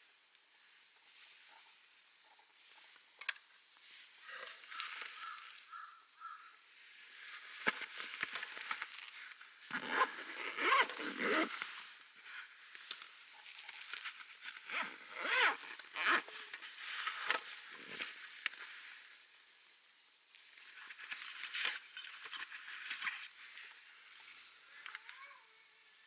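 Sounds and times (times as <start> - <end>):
rustling and scraping handling noise: 6.8 - 19.6, 20.3 - 25.4.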